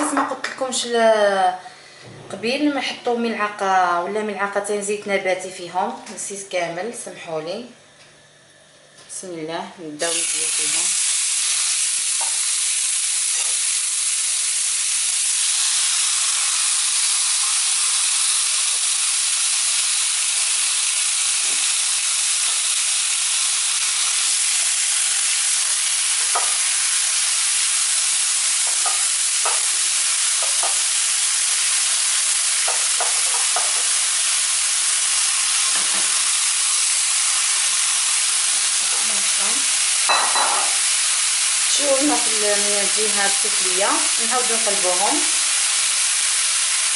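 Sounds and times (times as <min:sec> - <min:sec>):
meat sizzling in hot oil: 0:10.0 - 0:46.9.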